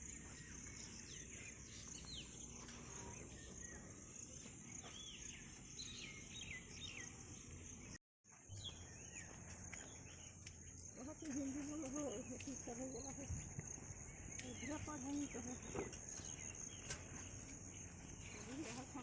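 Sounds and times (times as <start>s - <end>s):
birds chirping: 0.0s - 19.0s
insects droning: 8.6s - 19.0s.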